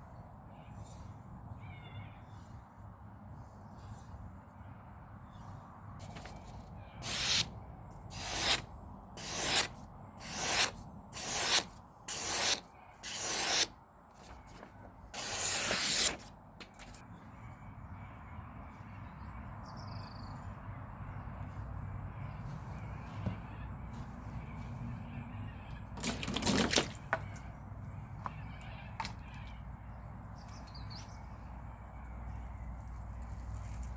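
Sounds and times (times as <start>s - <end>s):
knife blade scraping: 7.0s - 7.5s, 8.1s - 8.6s, 9.2s - 13.7s, 15.2s - 16.3s.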